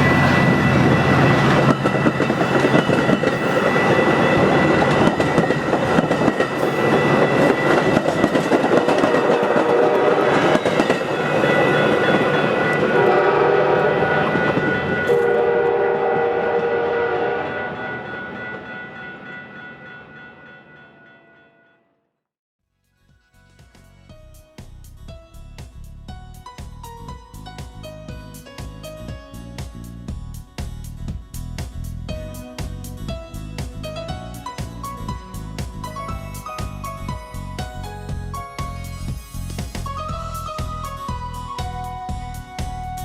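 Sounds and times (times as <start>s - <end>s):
train wheels clattering: 0.0s - 13.3s
train horn: 0.0s - 18.4s.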